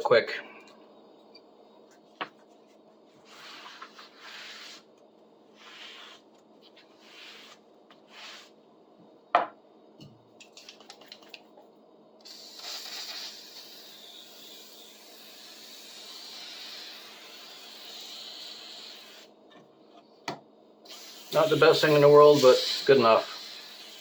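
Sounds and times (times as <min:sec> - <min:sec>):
aerosol can spraying: 0:12.2 - 0:19.3, 0:20.9 - 0:24.0.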